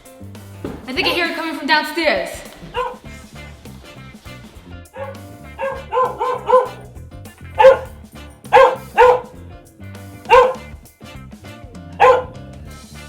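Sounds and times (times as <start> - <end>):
background music: 0.0 - 13.0
dog barking: 2.6 - 3.0, 5.0 - 7.0, 7.6 - 9.4, 10.2 - 10.7, 11.9 - 12.5.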